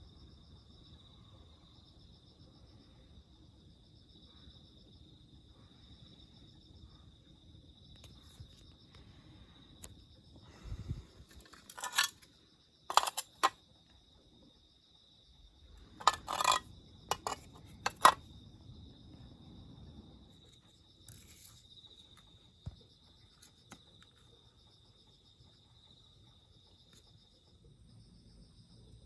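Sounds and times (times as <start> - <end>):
metallic clinks and knocks: 11.3 - 12.3, 12.9 - 13.6, 16.0 - 18.2.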